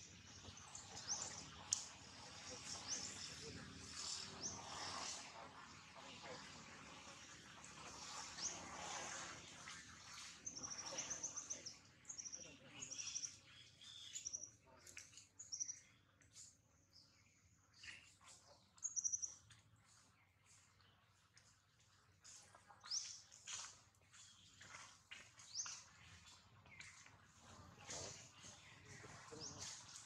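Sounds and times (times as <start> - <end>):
small bird chirping: 9.6 - 20.8.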